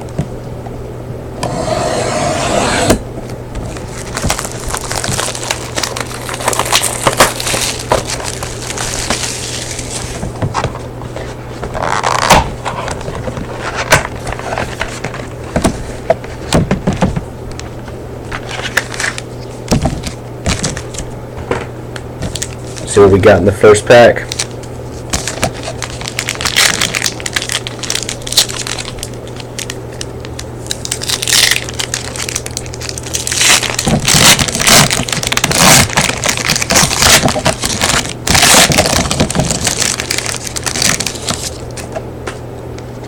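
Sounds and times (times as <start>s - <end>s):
plastic wrapping crinkling and tearing: 3.7s - 16.5s, 17.6s - 21.1s, 24.2s - 41.9s.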